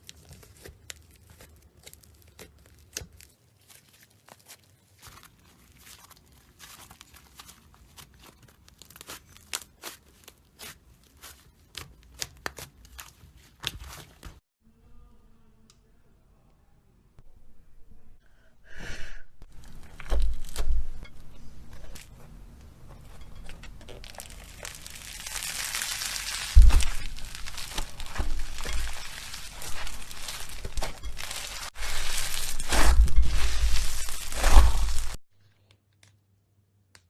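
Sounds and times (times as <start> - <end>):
slime crackling and crinkling: 0.0 - 14.4, 19.5 - 21.0, 23.0 - 35.2
dull thumps: 26.5 - 28.9.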